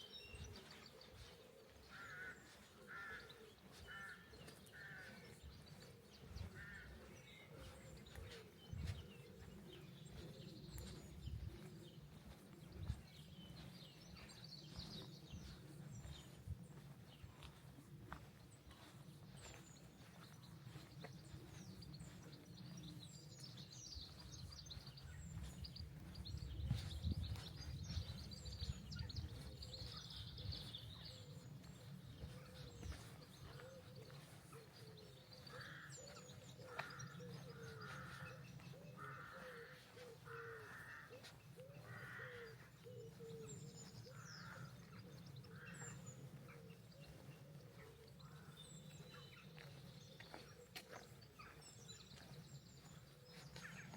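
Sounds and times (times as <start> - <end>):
birds chirping: 0.0 - 53.9
harsh caw-like calls: 1.9 - 5.3, 6.6 - 7.0, 39.0 - 42.7.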